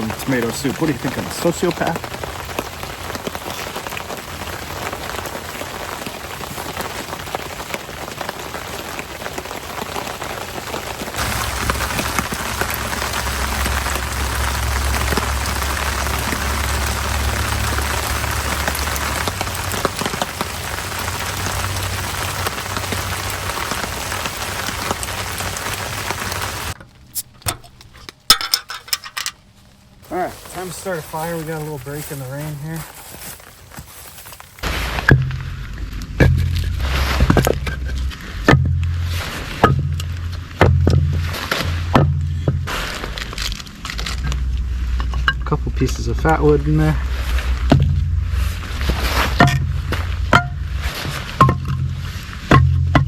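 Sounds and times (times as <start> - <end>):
steady rain: 0.0 - 27.6, 28.2 - 53.0
low rumble: 11.2 - 25.3, 34.6 - 53.0.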